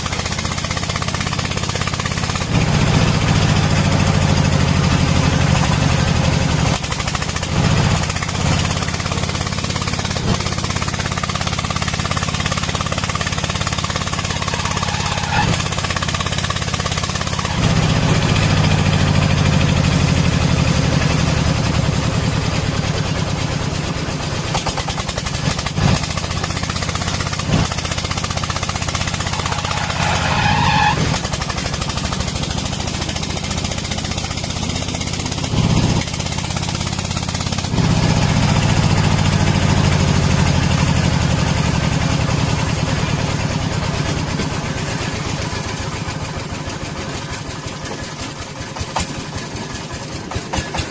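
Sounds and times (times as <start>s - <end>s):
diesel engine chugging: 0.0s - 50.9s
sharp engine knocks: 24.4s - 30.0s, 47.8s - 50.9s.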